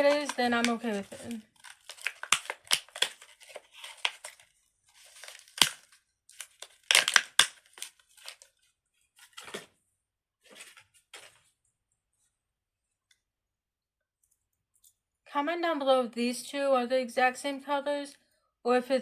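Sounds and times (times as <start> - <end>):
crinkly plastic rustling: 0.0 - 9.7, 10.4 - 11.6.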